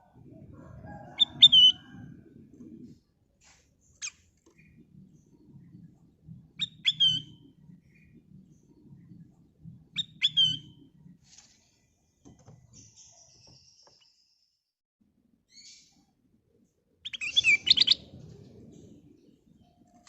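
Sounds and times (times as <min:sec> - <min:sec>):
bulbul chirping: 0:06.6 - 0:07.5, 0:09.9 - 0:10.9.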